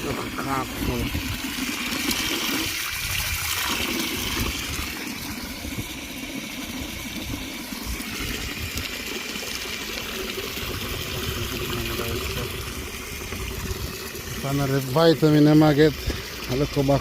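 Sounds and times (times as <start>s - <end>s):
water pouring into container: 0.0s - 17.0s.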